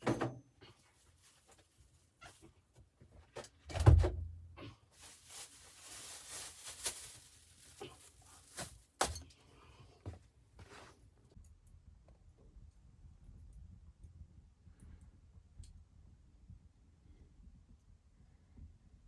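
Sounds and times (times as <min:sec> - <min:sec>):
rustling or scraping: 0:00.7 - 0:02.6, 0:04.8 - 0:09.3.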